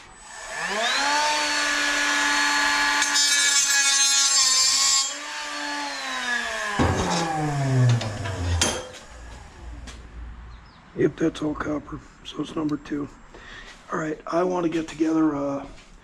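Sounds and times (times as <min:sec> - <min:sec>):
electric power tool whining: 0:00.0 - 0:10.0.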